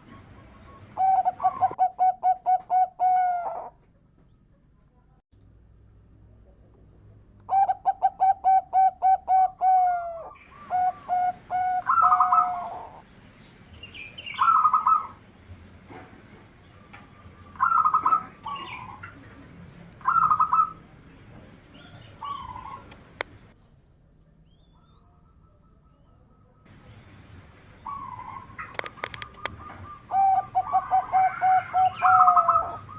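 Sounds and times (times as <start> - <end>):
dove cooing: 0.0 - 3.8, 7.5 - 13.0, 14.3 - 15.2, 16.8 - 19.3, 20.0 - 20.9, 21.7 - 23.5, 27.8 - 32.9.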